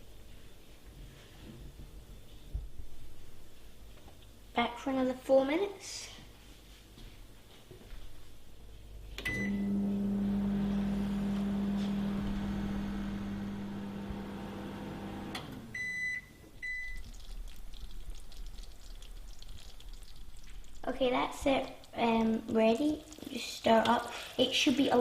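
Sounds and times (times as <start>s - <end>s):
microwave humming: 9.0s - 17.2s
microwave end beeps: 9.2s - 17.0s
microwave keypad beep: 9.3s - 9.7s, 15.8s - 17.0s.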